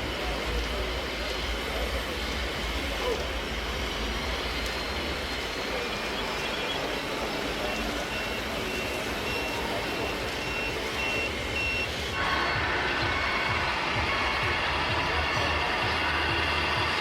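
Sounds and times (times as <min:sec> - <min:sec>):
steady background noise: 0:00.0 - 0:17.0
reversing warning beeper: 0:05.7 - 0:17.0.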